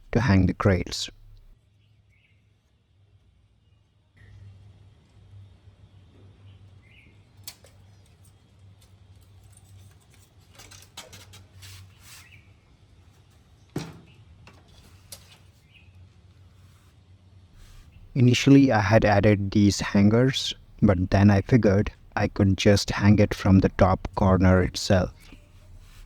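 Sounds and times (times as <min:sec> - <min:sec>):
low steady hum: 0:00.0 - 0:01.6, 0:17.6 - 0:26.0.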